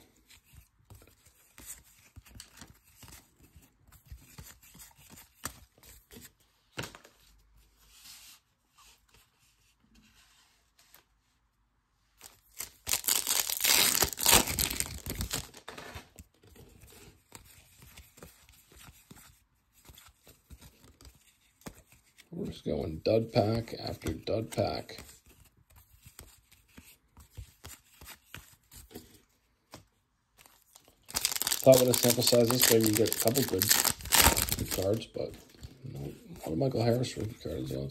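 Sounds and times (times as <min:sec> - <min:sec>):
card pack wrapper tearing: 0:12.3 - 0:15.6, 0:31.0 - 0:35.2.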